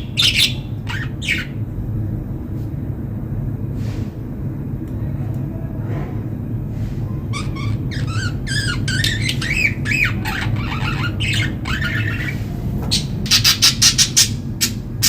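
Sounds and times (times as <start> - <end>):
budgerigars chattering: 0.0 - 1.6, 7.3 - 14.8
steady low hum: 0.0 - 15.0.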